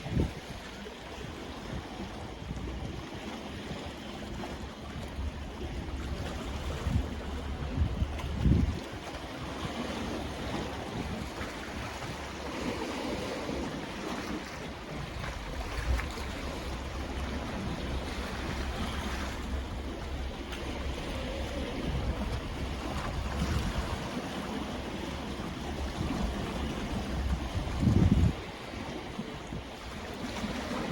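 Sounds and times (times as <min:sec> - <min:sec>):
sea waves washing in: 0:00.0 - 0:30.9.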